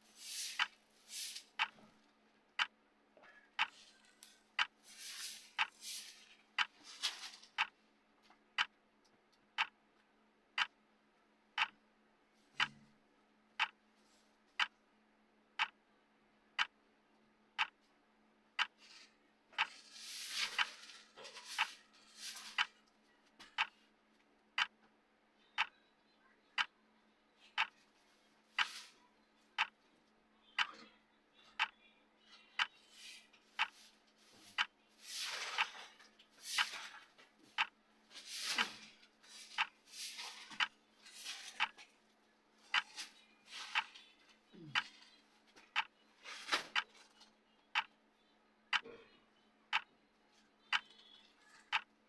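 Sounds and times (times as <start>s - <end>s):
soft hissing: 0.0s - 1.5s
clock ticking: 0.2s - 10.9s, 11.5s - 11.8s, 12.6s - 12.9s, 13.5s - 13.9s, 14.5s - 14.8s, 15.5s - 16.9s, 17.5s - 17.9s, 18.5s - 25.9s, 26.5s - 26.9s, 27.5s - 29.9s, 30.5s - 31.9s, 32.5s - 41.9s, 42.6s - 52.0s.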